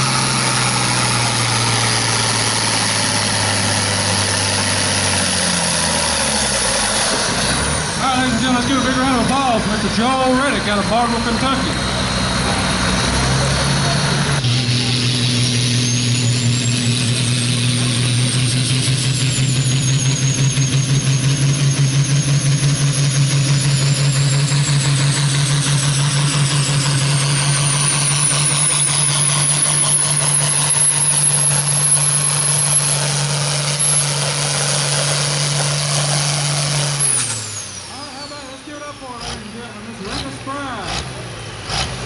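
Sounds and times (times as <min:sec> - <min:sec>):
diesel tractor engine drone: 0:00.0 - 0:42.0
turbocharger whistle: 0:11.8 - 0:39.0.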